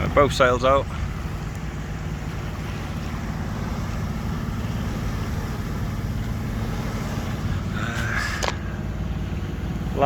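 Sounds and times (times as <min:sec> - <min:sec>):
boat engine rumbling: 0:00.0 - 0:10.0
hiss of wind and water: 0:00.0 - 0:10.0.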